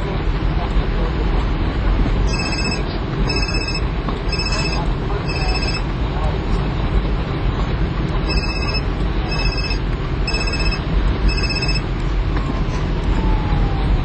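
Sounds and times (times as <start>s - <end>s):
electronic beeps: 2.3s - 5.9s, 8.3s - 11.8s.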